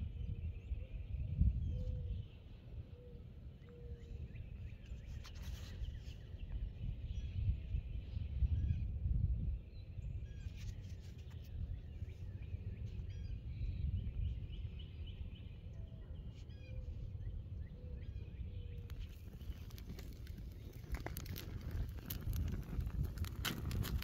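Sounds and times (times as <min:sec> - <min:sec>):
small birds chirping: 0:09.4 - 0:24.0.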